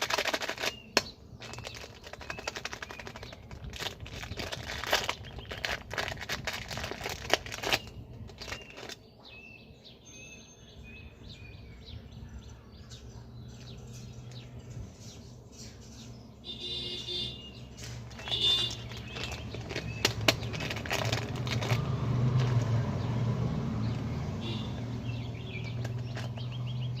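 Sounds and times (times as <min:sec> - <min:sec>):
high bird chirps: 0:07.8 - 0:20.7, 0:23.9 - 0:27.0.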